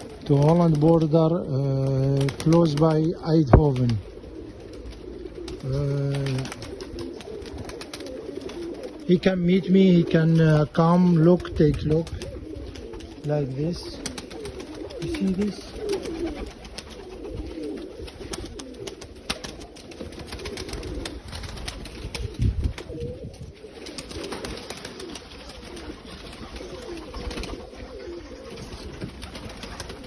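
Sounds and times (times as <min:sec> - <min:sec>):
pigeons cooing: 0:00.0 - 0:30.0.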